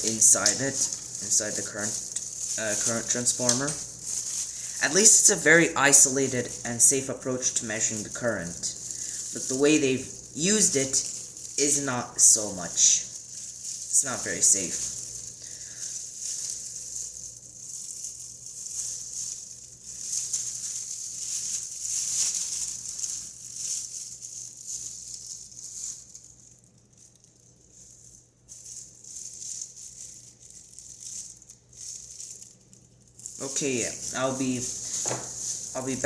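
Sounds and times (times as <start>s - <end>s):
steady hiss: 0.0s - 18.1s, 33.4s - 36.0s
small parts rattling and scraping: 0.0s - 36.0s.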